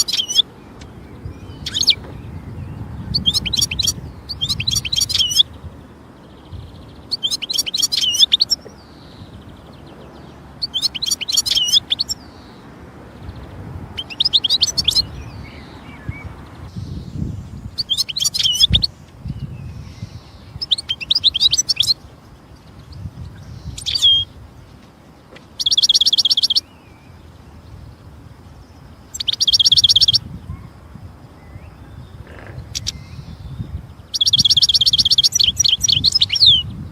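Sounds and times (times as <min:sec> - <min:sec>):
goldfinch buzzy trills: 0:00.0 - 0:09.8, 0:10.6 - 0:12.6, 0:25.6 - 0:26.7
goldfinch twittering: 0:00.0 - 0:12.6, 0:13.2 - 0:17.1, 0:17.8 - 0:24.4, 0:25.6 - 0:26.7, 0:29.0 - 0:30.2, 0:31.5 - 0:36.8.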